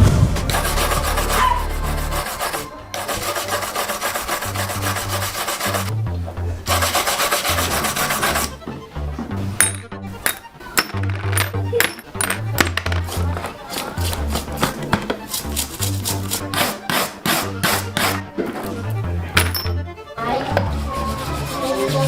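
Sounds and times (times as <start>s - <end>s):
background music with bass: 0.0s - 22.0s
hand scraping bicycle part: 0.5s - 5.9s, 6.6s - 8.6s, 9.5s - 18.8s.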